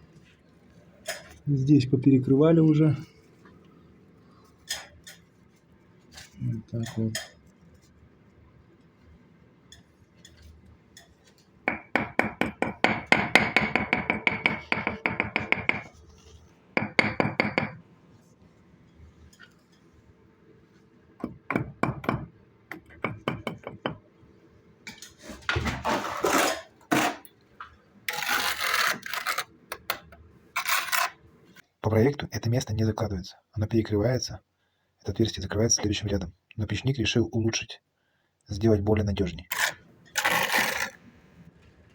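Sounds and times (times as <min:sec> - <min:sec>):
trowel scraping and clinking on brick: 0:25.8 - 0:27.3, 0:28.1 - 0:29.9, 0:30.6 - 0:31.2, 0:39.5 - 0:41.0.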